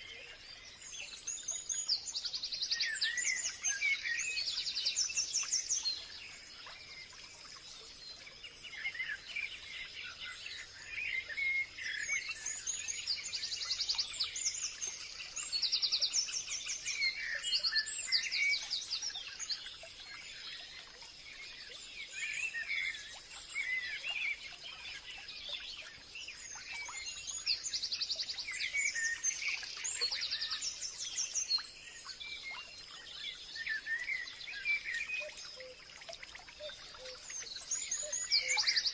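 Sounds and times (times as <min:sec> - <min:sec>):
bird chirps: 0:36.5 - 0:38.9.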